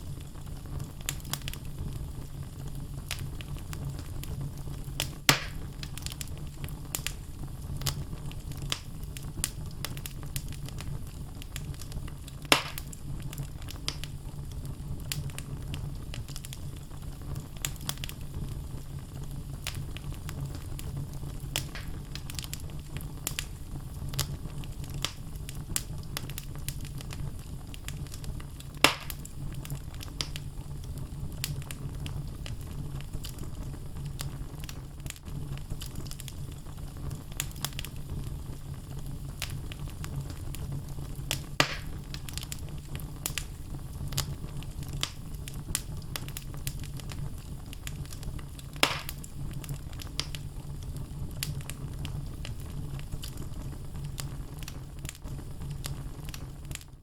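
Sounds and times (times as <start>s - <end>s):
loud fire pops: 0.0s - 57.0s
low rumble of flames: 0.0s - 57.0s
logs crackling: 5.0s - 14.1s, 19.6s - 30.4s, 41.2s - 52.6s.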